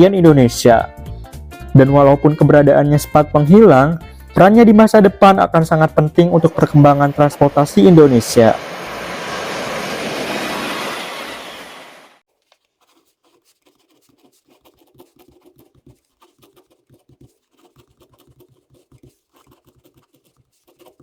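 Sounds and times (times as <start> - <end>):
steady rushing noise: 6.4 - 12.2
faint ticks and scratches: 12.4 - 21.0.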